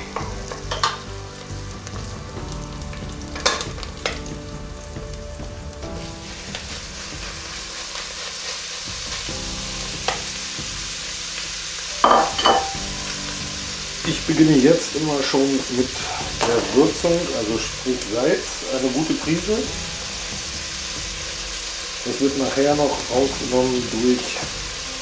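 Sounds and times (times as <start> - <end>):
food sizzling in oil: 0.0 - 25.0
spatula clattering on pot: 0.1 - 1.1, 3.4 - 4.2, 12.0 - 12.8
wooden spatula knocking pot: 12.0 - 12.8.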